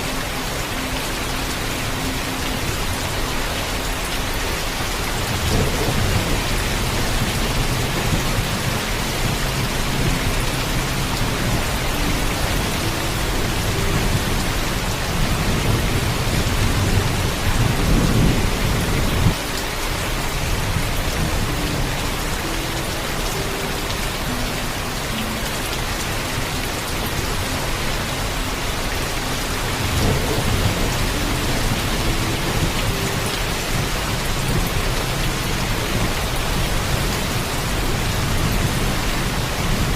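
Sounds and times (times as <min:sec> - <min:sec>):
heavy rain falling: 0:00.0 - 0:39.9
thunder rumbling: 0:05.1 - 0:19.4.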